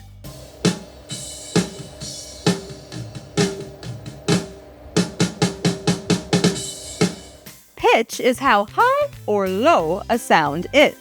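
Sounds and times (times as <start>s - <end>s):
drum hits: 0.3s - 7.5s.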